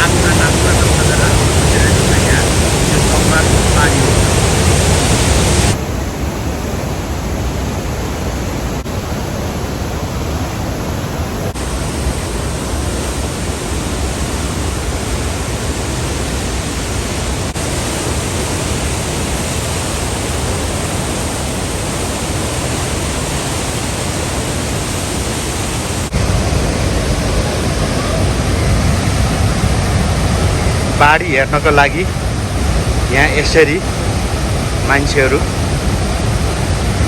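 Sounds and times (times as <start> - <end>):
floodwater rushing: 0.0 - 37.0.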